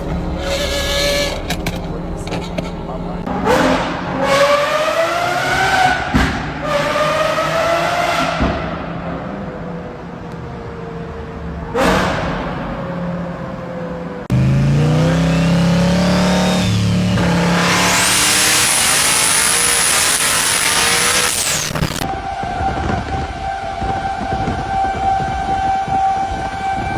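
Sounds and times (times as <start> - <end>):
car engine revving: 14.3 - 22.1
wide hissing screech: 15.5 - 22.1.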